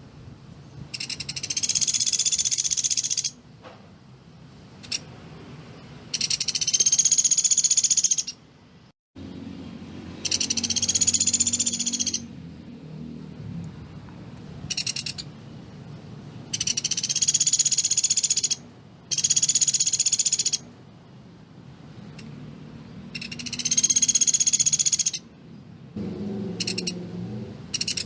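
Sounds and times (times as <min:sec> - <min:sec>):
bird trilling high notes: 0:10.2 - 0:12.3.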